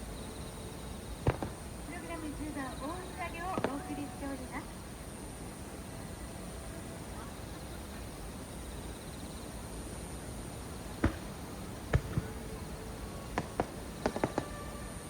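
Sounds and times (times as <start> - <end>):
high insect-like hum: 0.0 - 15.0
fireworks bangs: 1.0 - 4.7, 10.8 - 15.0.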